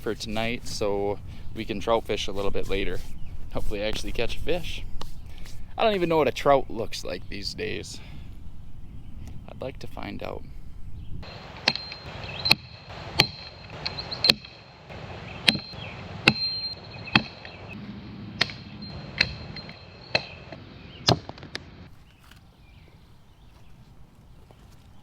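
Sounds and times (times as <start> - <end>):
blade chopping firewood: 11.3 - 14.6, 15.4 - 17.7, 18.4 - 22.4.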